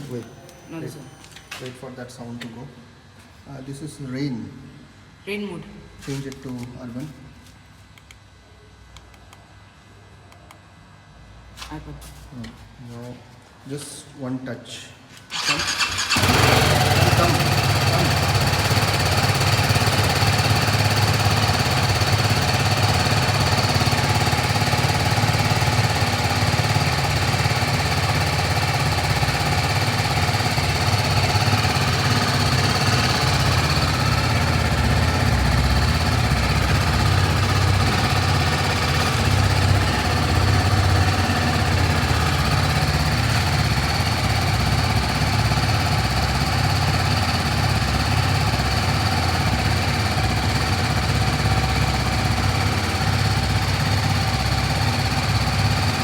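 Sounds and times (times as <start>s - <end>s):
motorcycle engine idling: 15.3s - 56.0s.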